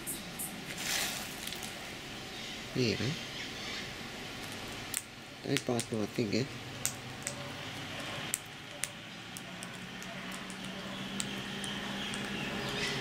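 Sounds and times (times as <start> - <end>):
soft squishy sounds: 0.7 - 1.9, 6.8 - 12.9.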